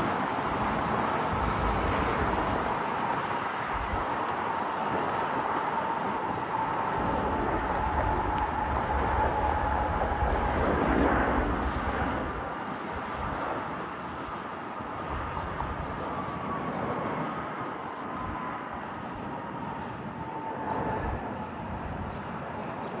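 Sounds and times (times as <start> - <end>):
jet engines rushing and whining: 0.0 - 23.0.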